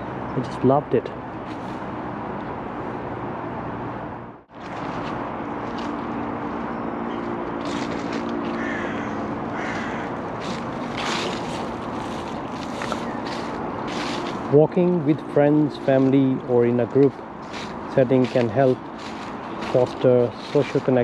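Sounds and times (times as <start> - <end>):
harsh bird calls: 8.5 - 10.6, 12.9 - 13.5.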